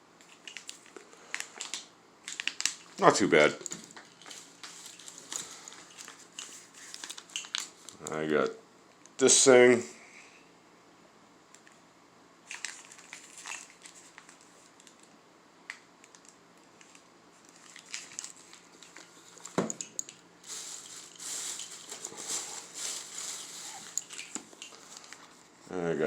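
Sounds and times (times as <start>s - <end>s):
packaging crinkling and rustling: 0.2s - 8.1s, 12.4s - 15.2s, 16.0s - 25.5s.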